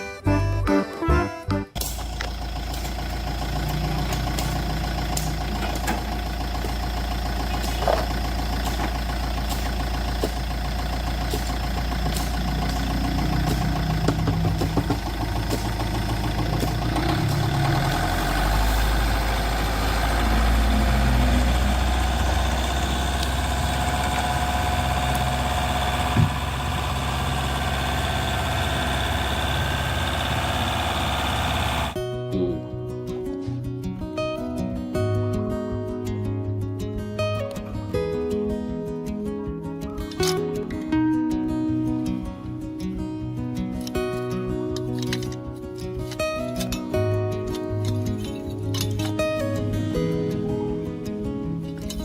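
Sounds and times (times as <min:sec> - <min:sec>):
engine idling: 0:00.0 - 0:32.0.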